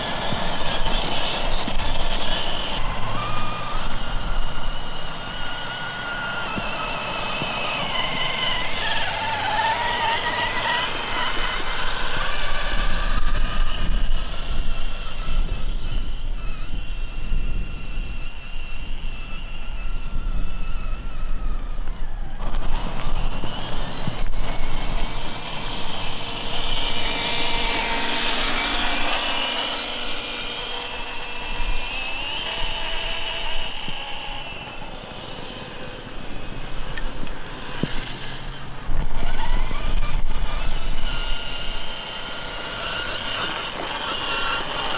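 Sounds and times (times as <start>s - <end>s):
electric motor whining: 0.0s - 44.9s.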